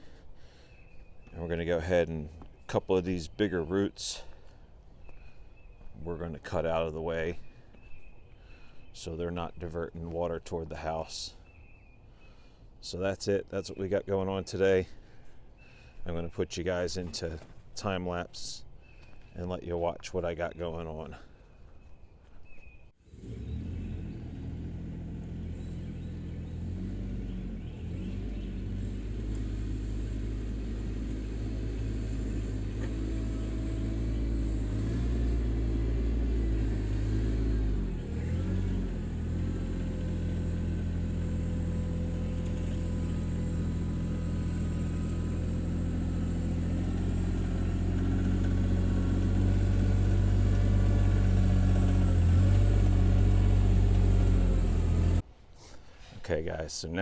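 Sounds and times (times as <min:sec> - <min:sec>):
tractor diesel engine running: 0:23.3 - 0:55.2.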